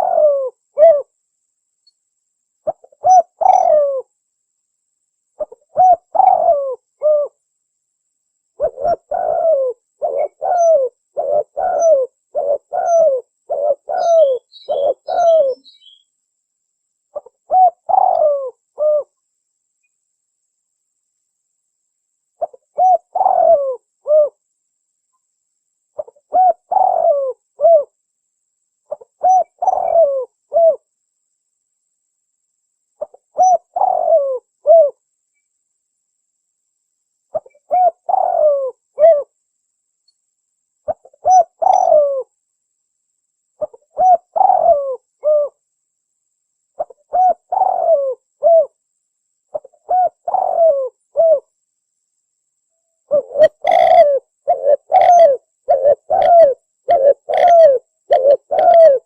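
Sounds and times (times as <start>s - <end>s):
dove cooing: 0.0s - 1.1s, 2.6s - 4.1s, 5.4s - 7.4s, 8.6s - 16.0s, 17.1s - 19.1s, 22.4s - 24.4s, 26.0s - 27.9s, 28.9s - 30.8s, 33.0s - 35.0s, 37.3s - 39.3s, 40.9s - 42.3s, 43.6s - 45.6s, 46.8s - 48.8s, 49.5s - 51.5s, 53.1s - 59.0s.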